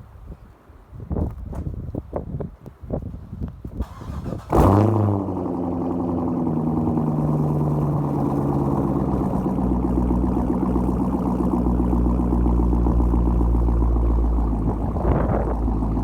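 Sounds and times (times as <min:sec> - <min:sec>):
car engine starting and idling: 0:03.8 - 0:16.0.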